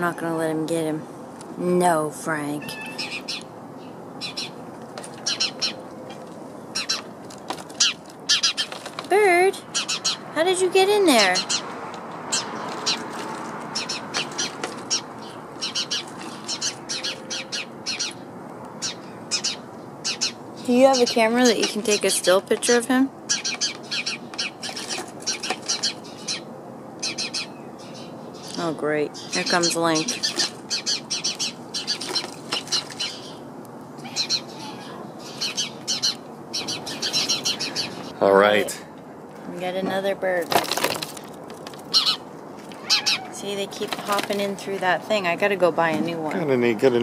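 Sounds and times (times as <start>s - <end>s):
small bird chirping: 2.6s - 5.9s, 9.6s - 10.5s, 11.2s - 38.3s, 41.8s - 44.5s.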